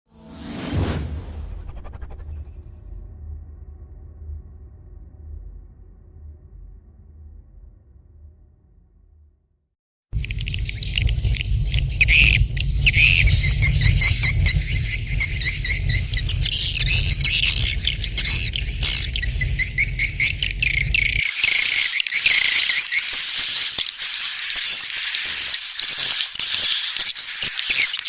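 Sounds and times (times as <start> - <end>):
low steady hum: 10.2 - 21.2
swiftlets chittering chorus: 10.2 - 28.0.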